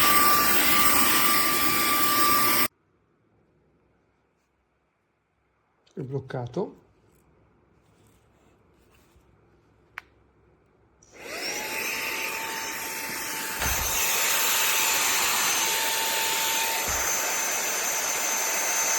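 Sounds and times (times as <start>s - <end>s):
handheld vacuum cleaner whining: 0.0s - 2.7s, 11.0s - 18.9s.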